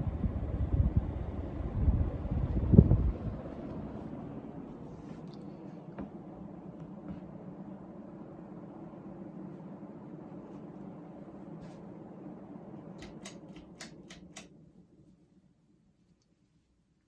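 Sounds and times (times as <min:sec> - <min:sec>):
ceiling fan motor humming: 0:00.0 - 0:17.0
sharp clicks: 0:13.0 - 0:14.5.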